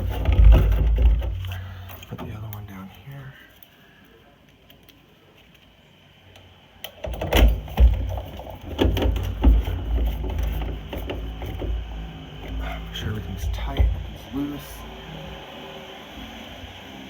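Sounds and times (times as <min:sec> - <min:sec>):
metal parts knocking and rattling: 0:00.0 - 0:02.5, 0:07.0 - 0:14.2
low steady rumble: 0:06.2 - 0:17.0.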